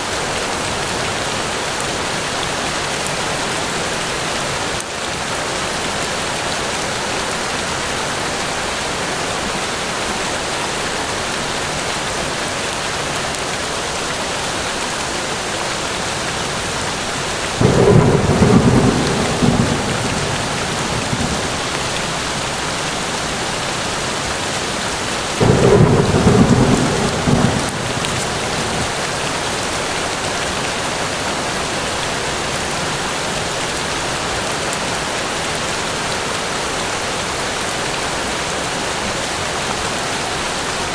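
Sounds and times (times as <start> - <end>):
forest rain: 0.0 - 40.9
low rumbles of thunder: 17.6 - 24.2, 25.4 - 29.6.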